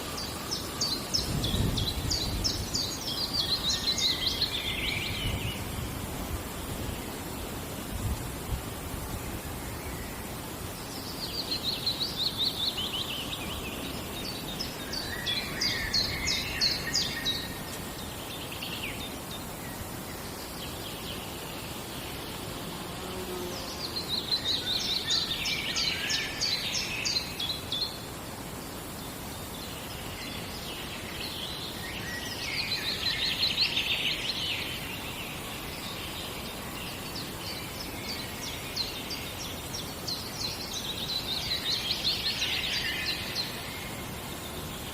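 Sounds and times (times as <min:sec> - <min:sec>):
forest ambience hiss: 0:00.0 - 0:44.9
songbird singing: 0:00.0 - 0:44.9.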